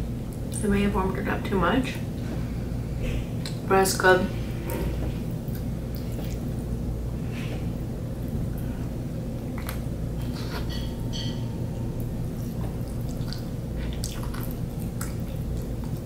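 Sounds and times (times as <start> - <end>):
low hum: 0.0 - 16.0
person chewing soft bun: 5.2 - 16.0.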